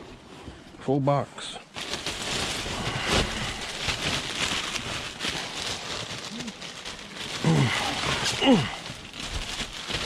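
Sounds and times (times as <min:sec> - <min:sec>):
plastic bags rustling: 0:01.4 - 0:10.0.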